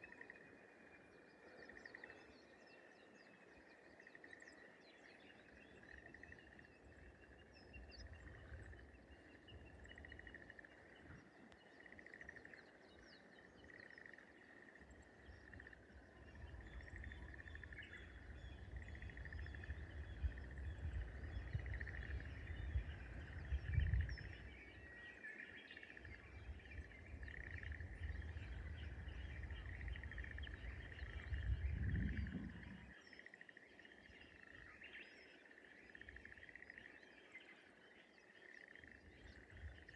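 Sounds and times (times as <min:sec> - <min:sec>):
bird chirps: 0:04.3 - 0:39.9
low rumble: 0:27.8 - 0:32.9.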